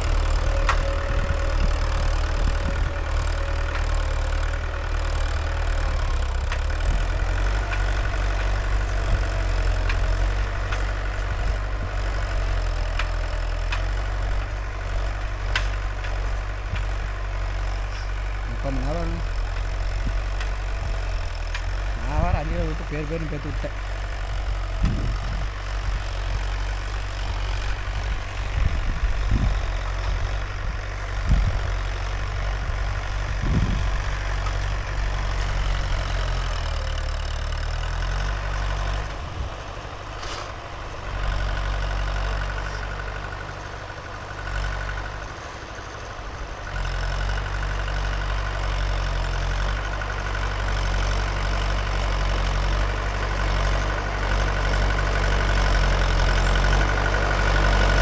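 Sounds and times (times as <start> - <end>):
tractor diesel engine running: 0.0 - 58.0
short thumps: 40.1 - 40.8.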